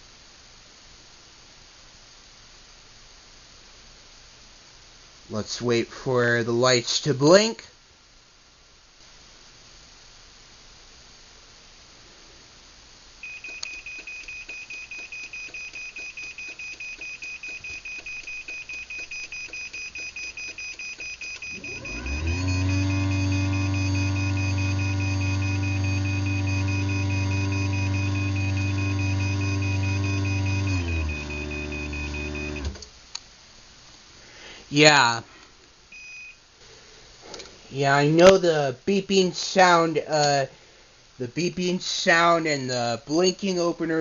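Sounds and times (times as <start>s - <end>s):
rapid high beeps: 13.2s - 32.7s
garage door opener motor hum: 19.5s - 32.9s.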